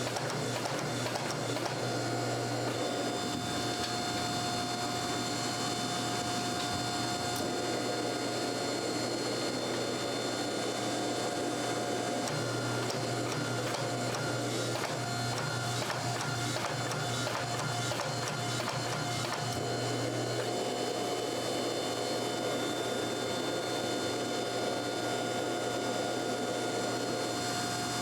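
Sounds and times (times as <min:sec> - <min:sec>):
machine whine: 0:00.0 - 0:24.6
workshop machine running: 0:00.0 - 0:24.6.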